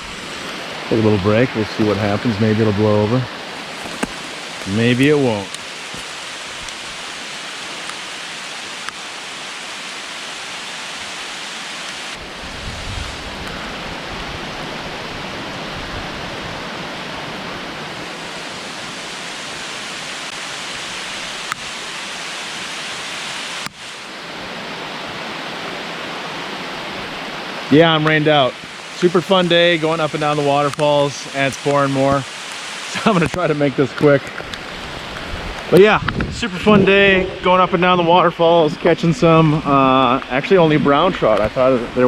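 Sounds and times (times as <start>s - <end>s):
heavy rain falling: 0.0s - 42.0s
rushing stream water: 0.0s - 42.0s
low rumble: 36.0s - 38.8s.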